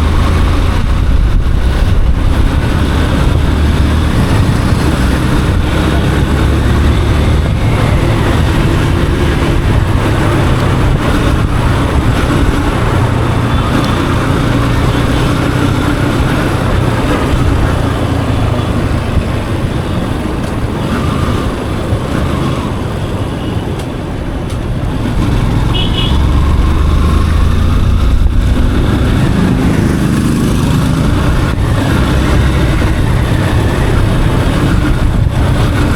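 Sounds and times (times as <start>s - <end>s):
motorcycle engine running: 0.0s - 23.0s, 24.8s - 35.9s
wind and road noise: 0.0s - 35.9s.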